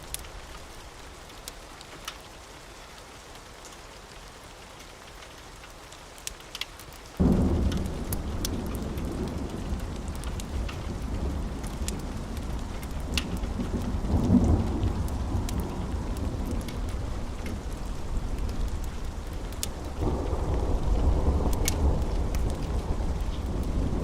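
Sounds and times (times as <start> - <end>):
steady rain: 0.0 - 24.0
wood fire crackling: 0.0 - 24.0
rolling thunder: 7.2 - 24.0.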